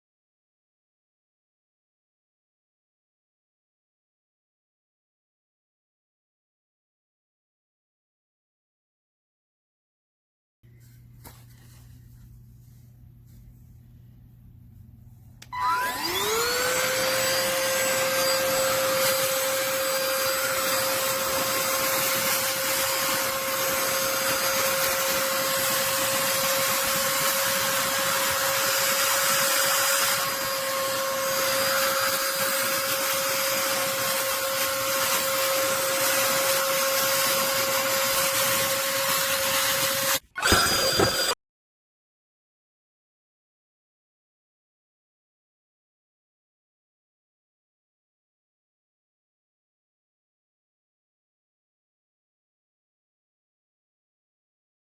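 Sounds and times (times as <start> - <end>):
handheld vacuum motor whine: 15.4 - 41.4.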